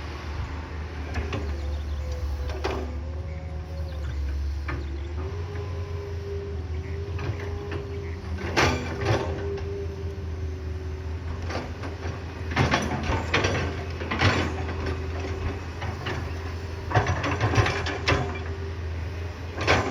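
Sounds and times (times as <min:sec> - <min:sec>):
excavator diesel engine running: 0:00.0 - 0:19.9
excavator bucket clanking and scraping: 0:01.0 - 0:05.4, 0:06.8 - 0:09.9, 0:11.2 - 0:18.8, 0:19.4 - 0:19.9.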